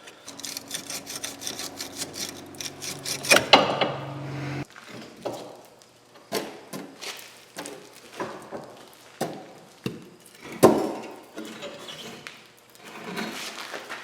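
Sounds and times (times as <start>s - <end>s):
impact wrench whining and rattling: 0.0s - 4.6s.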